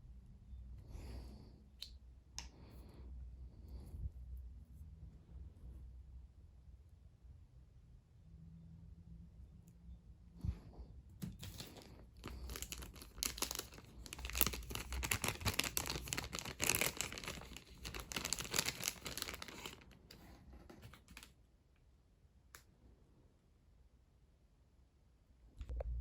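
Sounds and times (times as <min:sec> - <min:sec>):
crinkling rustling handling noise: 0:11.2 - 0:21.4.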